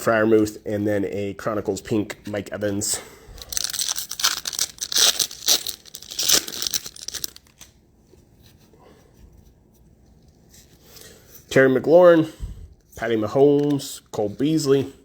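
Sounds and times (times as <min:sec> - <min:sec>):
faint handling noise: 0:02.1 - 0:11.6, 0:12.7 - 0:14.6
plastic wrapper tearing and crinkling: 0:03.4 - 0:07.7.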